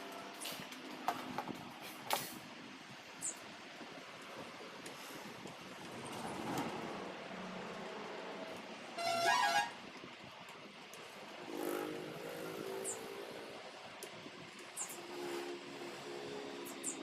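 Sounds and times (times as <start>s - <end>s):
street noise: 0.0s - 17.0s
vehicle horn honk: 9.0s - 9.8s.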